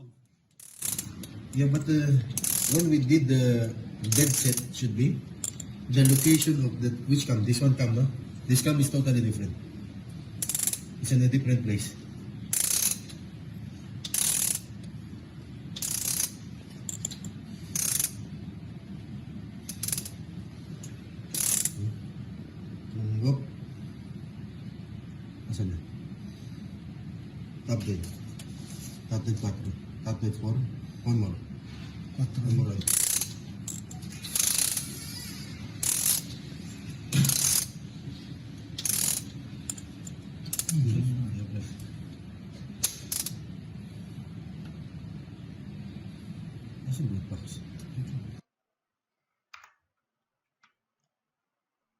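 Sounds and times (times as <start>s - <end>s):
low steady hum: 0.0s - 48.5s
ratchet wrench clicking: 0.5s - 1.7s, 2.4s - 2.9s, 4.1s - 4.7s, 5.4s - 6.5s, 10.4s - 10.9s, 12.5s - 13.2s, 14.0s - 14.7s, 15.8s - 18.2s, 19.7s - 20.2s, 21.3s - 21.8s, 32.8s - 36.4s, 37.1s - 37.8s, 38.8s - 40.8s, 42.8s - 43.4s.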